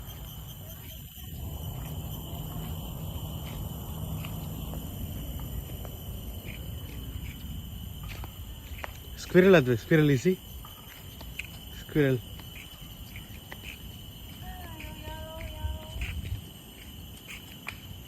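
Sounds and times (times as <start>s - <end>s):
high-pitched insect drone: 0.0s - 18.0s
low rumble: 1.2s - 8.1s.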